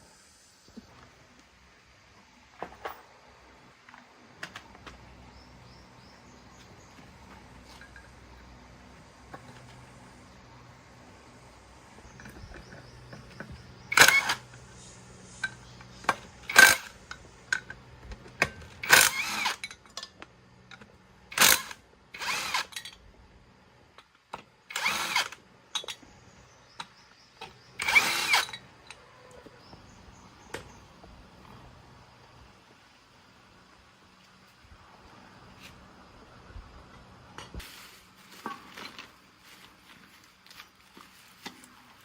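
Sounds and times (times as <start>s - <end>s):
power tool bursts: 13.8s - 17.1s, 18.7s - 19.7s, 21.3s - 22.9s, 24.7s - 25.4s, 27.7s - 28.7s.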